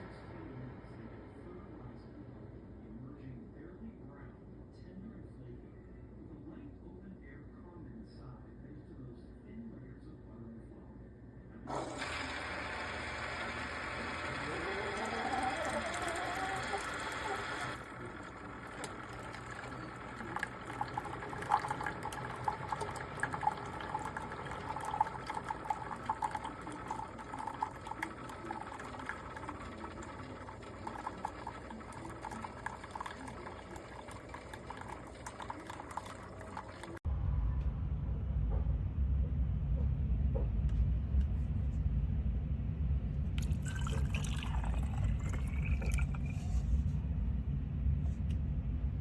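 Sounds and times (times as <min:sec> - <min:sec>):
coffee maker brewing: 0:11.7 - 0:37.0, 0:43.4 - 0:46.8
liquid trickling and gurgling: 0:11.7 - 0:37.0, 0:43.4 - 0:46.8
low rumble: 0:37.1 - 0:43.5, 0:46.2 - 0:49.0.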